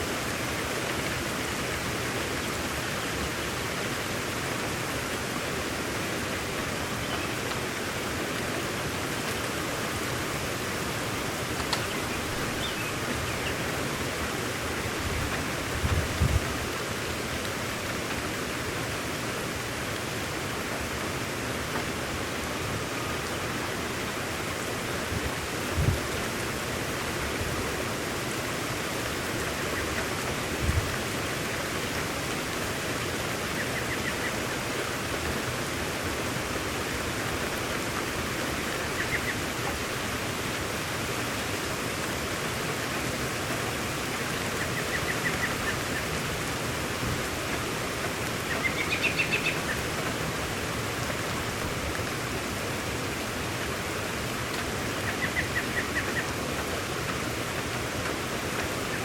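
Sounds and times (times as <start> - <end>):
steady rain falling: 0.0 - 59.0
bird chirping in trills: 48.5 - 49.7.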